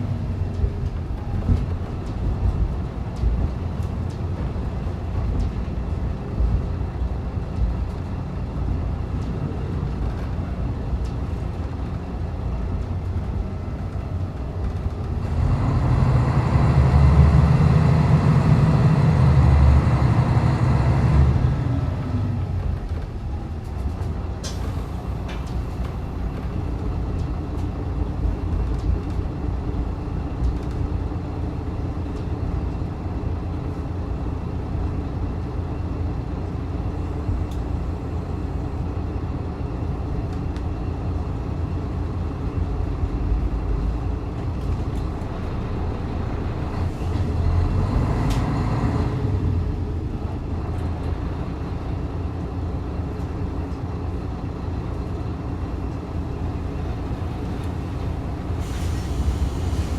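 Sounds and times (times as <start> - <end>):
railcar engine and wheels rumbling: 0.0 - 59.9.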